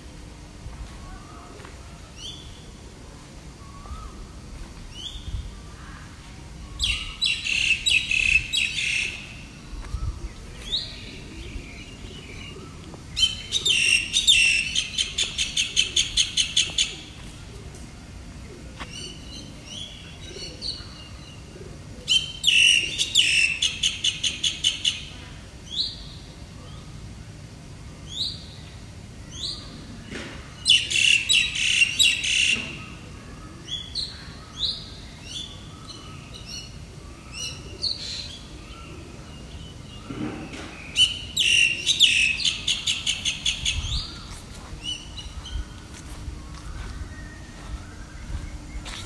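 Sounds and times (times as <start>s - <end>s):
birds chirping: 4.9s - 17.5s, 30.6s - 49.0s.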